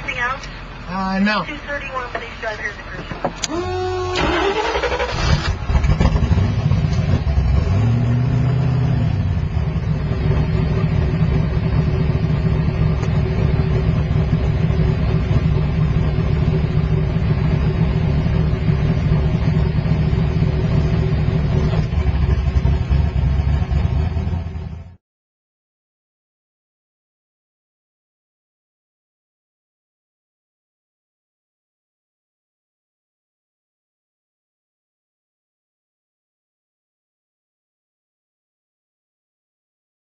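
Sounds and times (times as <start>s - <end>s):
car engine low rumble: 0.0s - 25.0s.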